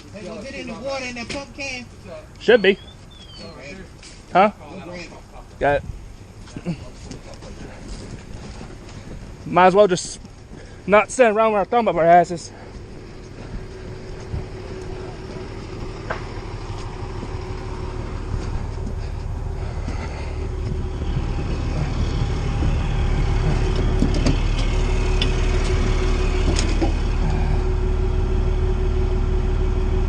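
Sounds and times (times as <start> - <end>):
large vehicle engine running: 0.0 - 30.0
sharp clicks and knocks: 20.6 - 27.0.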